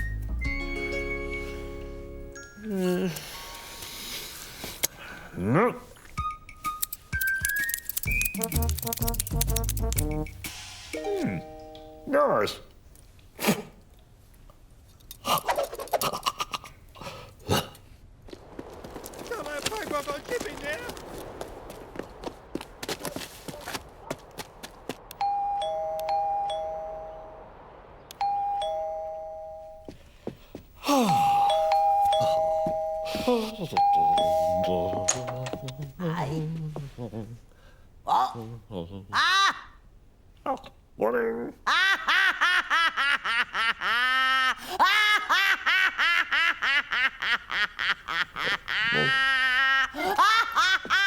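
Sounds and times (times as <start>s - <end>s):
loud falling sweep: 20.9s - 30.1s
two-tone doorbell chime: 25.2s - 27.2s, 28.3s - 30.0s, 31.4s - 35.7s.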